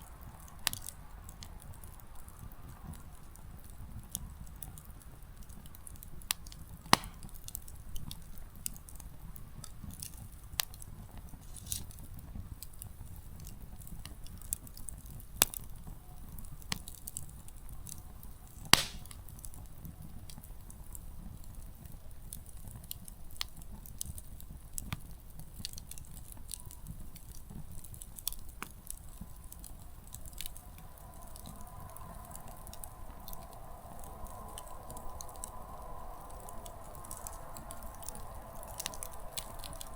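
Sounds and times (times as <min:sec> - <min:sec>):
campfire crackling: 0:00.0 - 0:39.9
faint steady hum: 0:00.0 - 0:39.9
firewood popping and snapping: 0:05.4 - 0:08.9, 0:18.6 - 0:19.7, 0:22.4 - 0:39.9.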